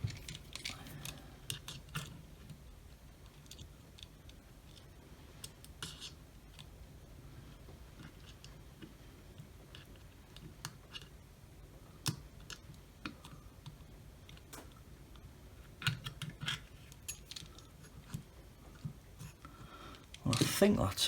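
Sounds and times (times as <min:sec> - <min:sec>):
plastic parts clicking and tapping: 0:00.0 - 0:02.6, 0:15.7 - 0:20.6.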